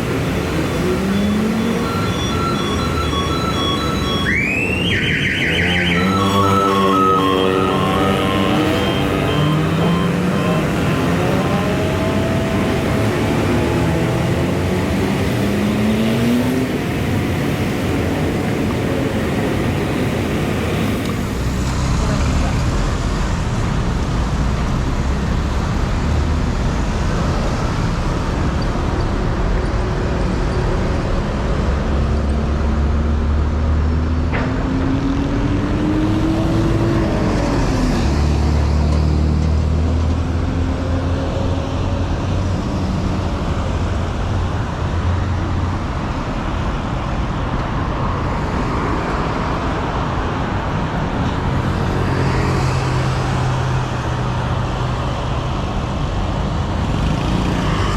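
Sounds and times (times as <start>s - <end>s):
vehicle engine accelerating: 0.0s - 4.2s, 5.5s - 17.9s, 20.7s - 45.8s
road traffic noise: 0.0s - 57.9s.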